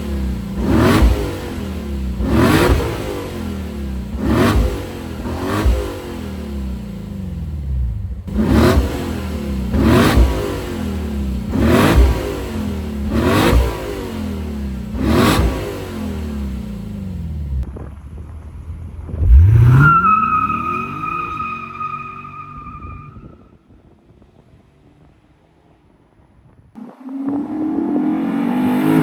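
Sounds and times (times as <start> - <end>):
car engine revving: 0.0 - 17.7, 18.8 - 21.9, 26.8 - 29.0.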